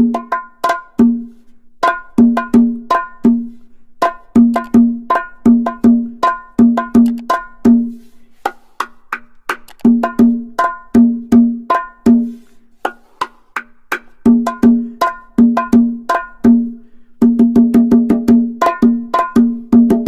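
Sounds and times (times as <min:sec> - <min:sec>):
cowbell-like percussion knocks: 0:00.0 - 0:01.2, 0:01.8 - 0:03.4, 0:04.0 - 0:07.8, 0:13.6 - 0:20.0.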